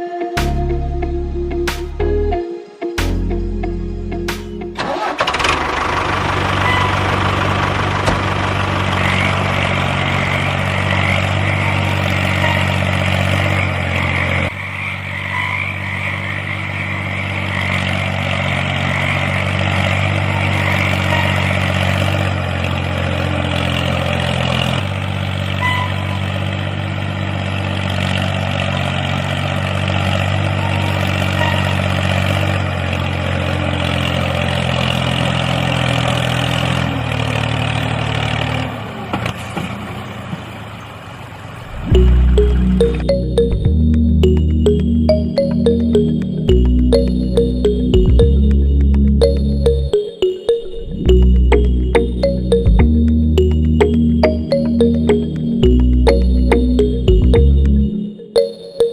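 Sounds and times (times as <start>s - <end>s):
small engine idling: 4.8s - 14.5s, 17.0s - 39.0s.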